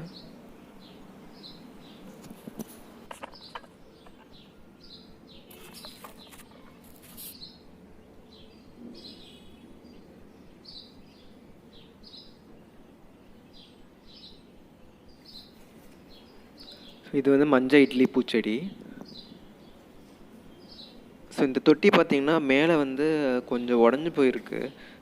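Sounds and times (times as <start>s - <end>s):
small bird chirping: 0.0s - 17.1s, 19.0s - 21.1s.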